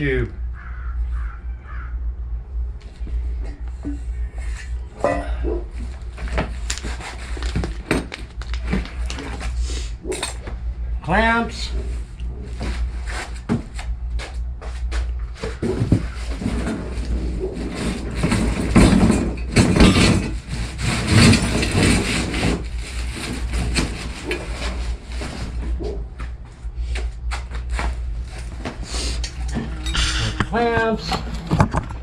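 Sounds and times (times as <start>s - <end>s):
cardboard and wrapping rustling: 5.7s - 9.6s, 20.5s - 26.3s.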